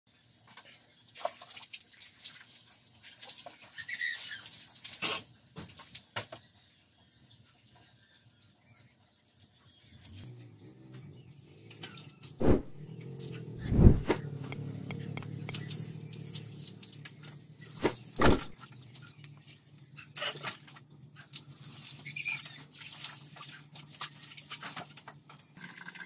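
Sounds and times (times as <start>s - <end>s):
copper tubing clinking: 14.5s - 18.5s.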